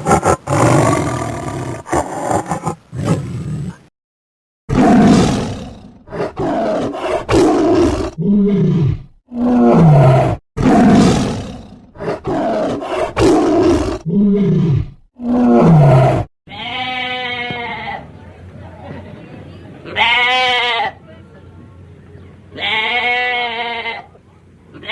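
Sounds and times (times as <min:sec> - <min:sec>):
big cat roaring: 0:00.0 - 0:03.9, 0:04.7 - 0:16.3.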